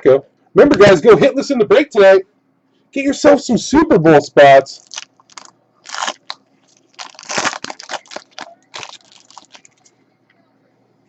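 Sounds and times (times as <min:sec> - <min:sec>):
packaging crinkling and rustling: 0:04.8 - 0:10.0.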